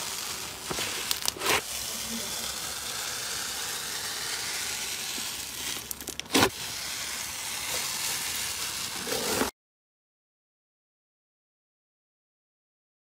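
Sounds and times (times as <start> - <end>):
slime crackling: 0.0 - 9.5.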